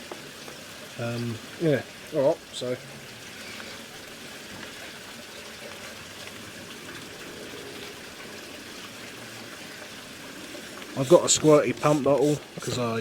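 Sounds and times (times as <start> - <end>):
water squirting into boiler: 10.6 - 13.0.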